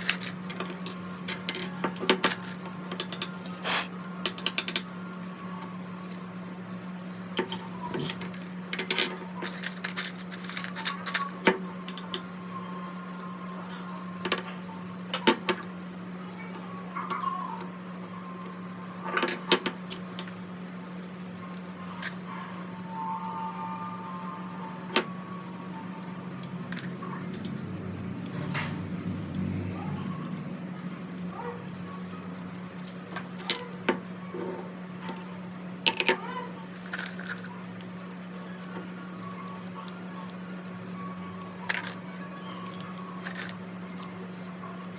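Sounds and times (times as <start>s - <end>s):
small metal parts clicking: 0.0s - 4.9s, 7.4s - 12.9s, 19.9s - 22.2s, 26.4s - 27.6s, 28.2s - 33.7s, 35.0s - 40.4s, 41.5s - 44.2s
steady low hum: 0.0s - 44.9s.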